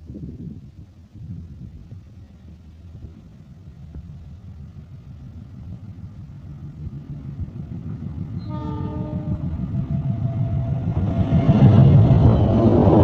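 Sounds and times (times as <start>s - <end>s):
train rumbling: 0.0s - 13.0s
locomotive horn blast: 8.4s - 9.5s.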